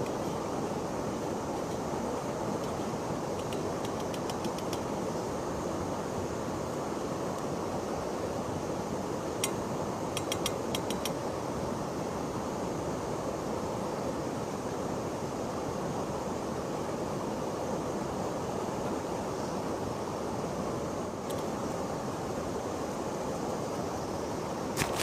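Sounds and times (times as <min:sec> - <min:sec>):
small sharp clicks: 0:03.4 - 0:04.9, 0:10.2 - 0:11.2.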